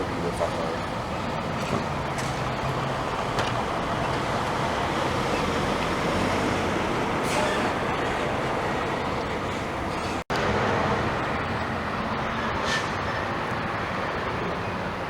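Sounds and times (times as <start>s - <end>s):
vehicles passing on road: 0.0s - 15.0s.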